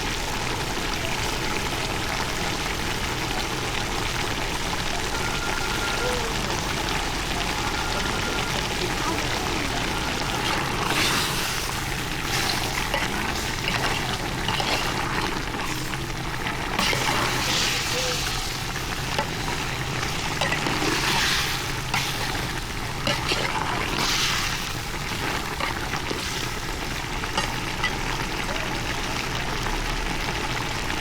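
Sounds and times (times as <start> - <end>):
water pouring and trickling: 0.0 - 31.0.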